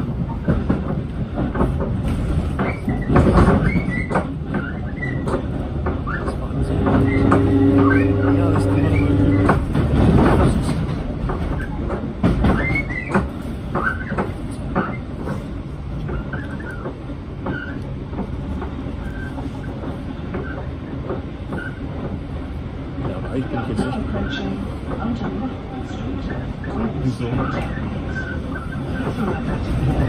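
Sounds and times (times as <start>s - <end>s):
rumble of wheels on track: 0.0s - 30.0s.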